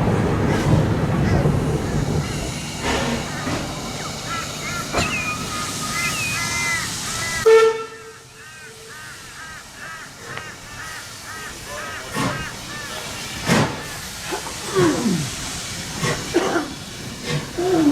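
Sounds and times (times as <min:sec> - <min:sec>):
steam locomotive hissing: 0:00.0 - 0:17.9
birds chirping: 0:00.4 - 0:14.6
locomotive whistle blast: 0:04.9 - 0:08.3.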